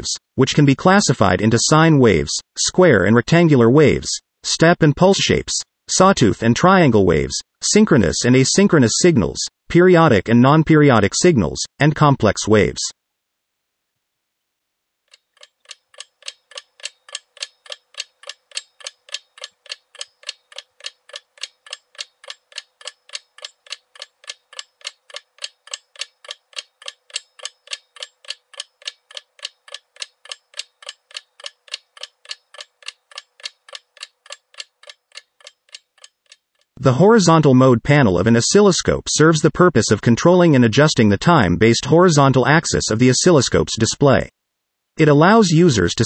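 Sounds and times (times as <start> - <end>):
clock-like ticking: 15.1 - 36.8.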